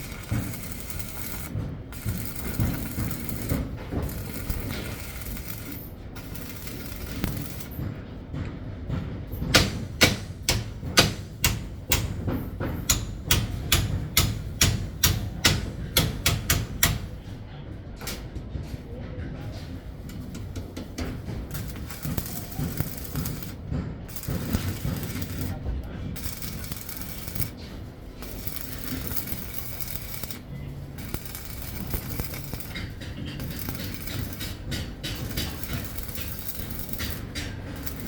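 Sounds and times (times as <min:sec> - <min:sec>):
hand tools knocking: 0:20.0 - 0:38.0.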